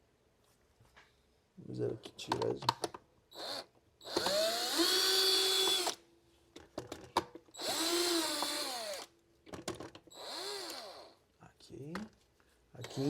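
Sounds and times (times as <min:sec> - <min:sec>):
cordless screwdriver whining: 0:03.4 - 0:06.0, 0:07.6 - 0:09.1, 0:10.1 - 0:11.1.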